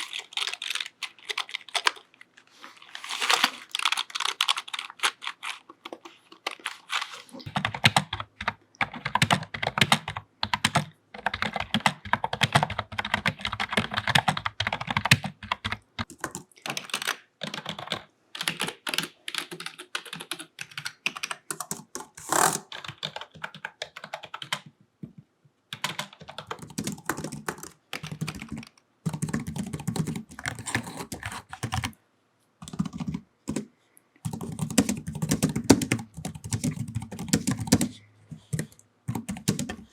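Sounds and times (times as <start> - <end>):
typing on computer keyboard: 7.5 - 24.7, 25.7 - 32.0, 32.6 - 33.7, 34.3 - 39.9.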